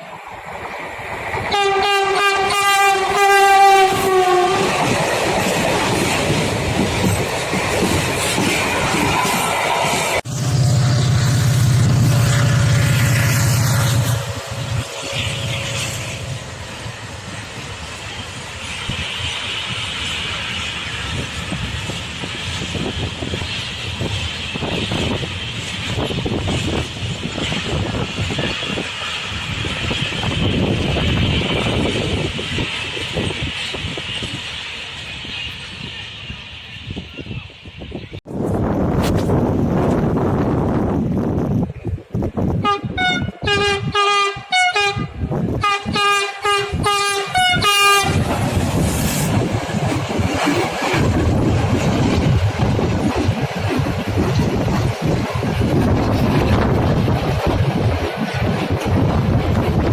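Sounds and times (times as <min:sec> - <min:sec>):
hissing rail noise: 0:00.0 - 0:59.9
train rumbling past: 0:00.0 - 0:59.9
train horn: 0:01.5 - 0:04.9, 0:42.6 - 0:48.3.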